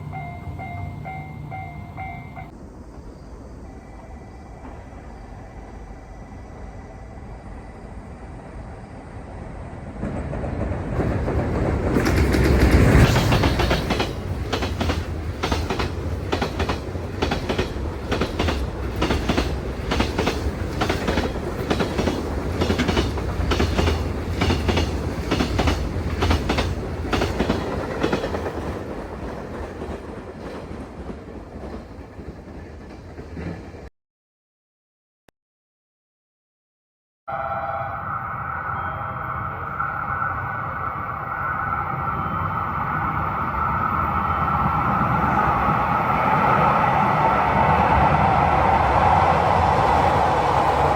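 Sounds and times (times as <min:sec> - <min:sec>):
train wheels clattering on rails: 0:09.9 - 0:33.9.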